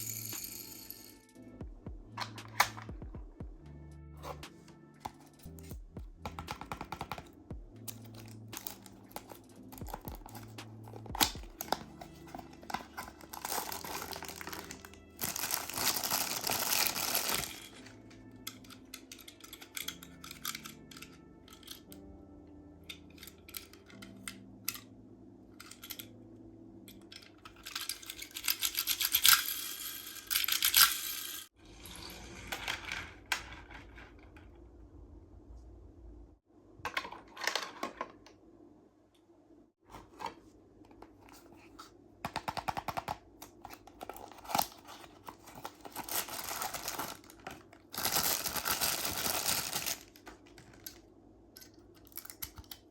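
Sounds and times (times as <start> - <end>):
soft background music: 0.0 - 33.8, 40.9 - 52.9
cardboard and plastic crinkling: 8.6 - 17.9, 41.0 - 51.0.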